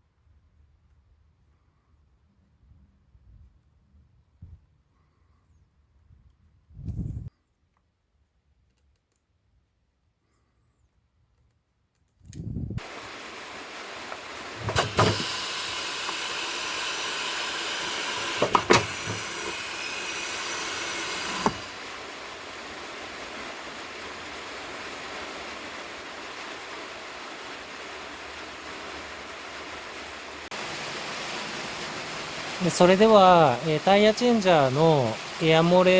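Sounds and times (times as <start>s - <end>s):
compressed air hissing: 12.8s - 22.2s.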